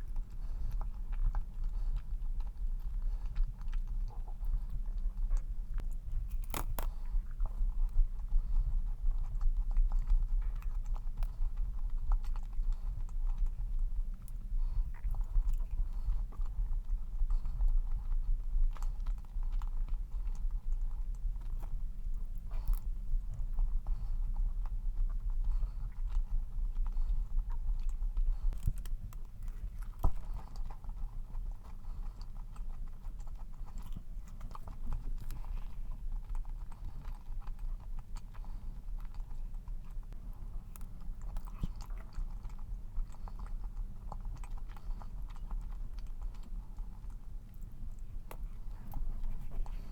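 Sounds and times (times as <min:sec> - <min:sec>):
chewing cookie with wet mouth clicks: 0:00.0 - 0:49.9.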